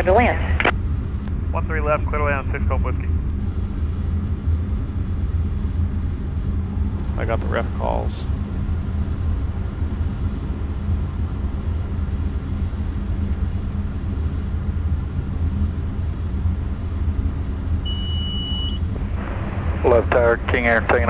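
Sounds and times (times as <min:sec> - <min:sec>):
jet cockpit drone: 0:00.0 - 0:21.0
short high beep: 0:17.9 - 0:18.8.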